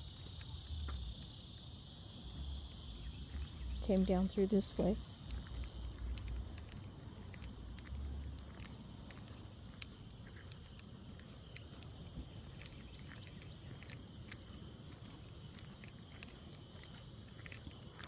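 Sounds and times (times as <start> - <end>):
high-pitched insect drone: 0.0 - 7.2.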